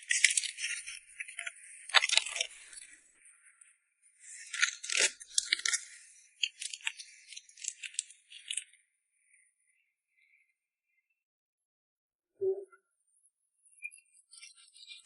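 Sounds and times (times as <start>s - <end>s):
dry rattling and crinkling: 0.0s - 2.8s, 4.4s - 8.7s.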